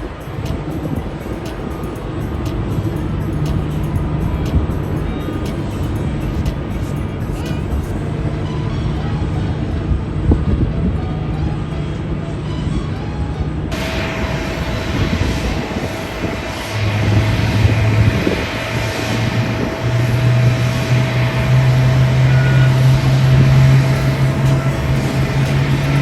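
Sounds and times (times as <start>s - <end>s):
jet engine hiss and whine: 0.0s - 26.0s
low hum: 0.0s - 26.0s
jet engine rumble: 13.6s - 26.0s.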